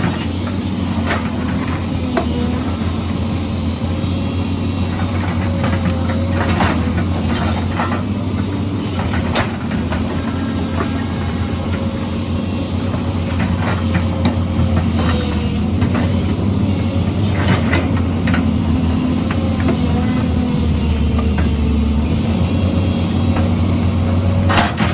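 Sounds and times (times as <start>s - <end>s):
excavator diesel engine running: 0.0s - 24.9s.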